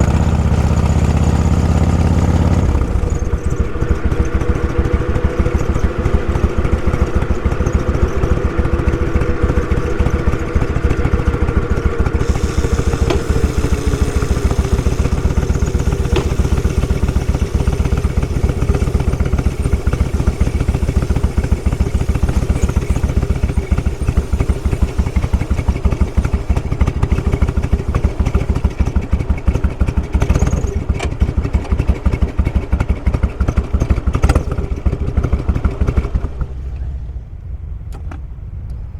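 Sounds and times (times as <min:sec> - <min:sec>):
motorcycle engine running: 0:00.0 - 0:37.8
whine falling in pitch: 0:02.1 - 0:28.6.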